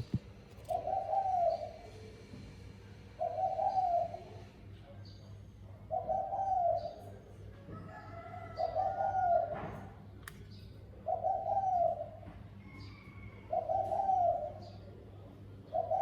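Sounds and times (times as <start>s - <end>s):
dove cooing: 0.0s - 1.9s, 3.2s - 4.4s, 5.9s - 7.1s, 8.5s - 9.8s, 11.0s - 12.3s, 12.9s - 14.8s, 15.7s - 16.0s.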